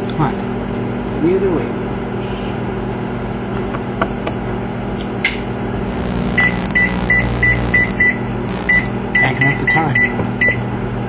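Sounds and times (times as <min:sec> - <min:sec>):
microwave oven humming: 0:05.9 - 0:08.8.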